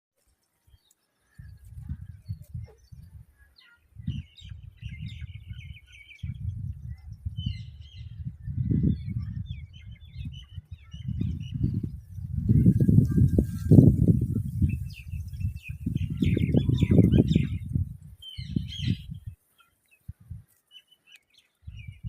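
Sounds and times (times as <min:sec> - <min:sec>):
low rumbling on microphone: 0:04.0 - 0:19.3.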